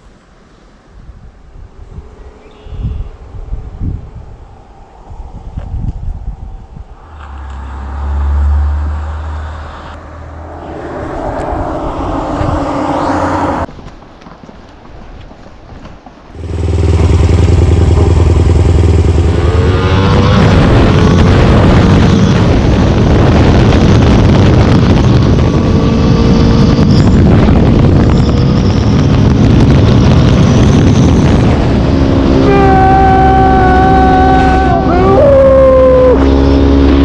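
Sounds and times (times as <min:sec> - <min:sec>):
wind noise on microphone: 0:00.9 - 0:37.0
motorcycle engine revving: 0:16.4 - 0:37.0.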